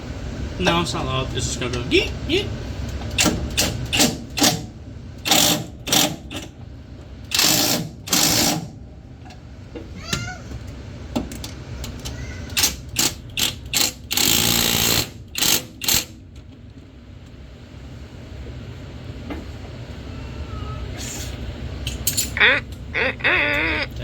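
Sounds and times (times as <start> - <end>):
battery wrench bursts: 5.2 - 6.2, 7.3 - 8.7, 12.6 - 16.2.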